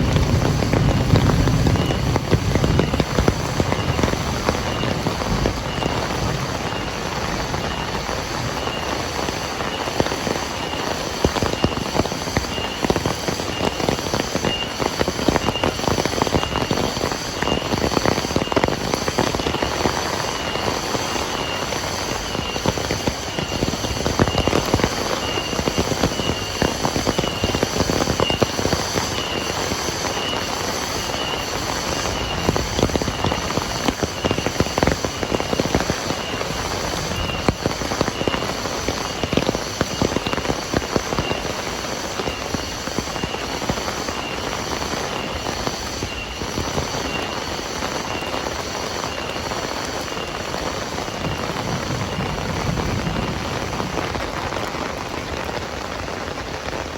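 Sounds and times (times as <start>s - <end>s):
heavy rain pouring: 0.0s - 56.9s
raindrops tapping hard surface: 0.0s - 56.9s.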